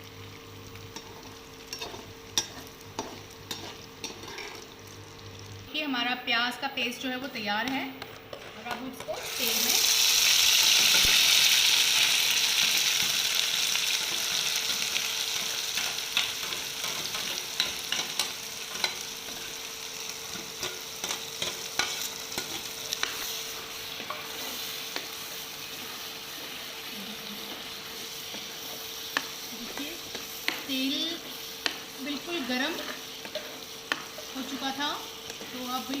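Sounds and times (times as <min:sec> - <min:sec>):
paste sizzling in hot oil: 0:08.3 - 0:36.0.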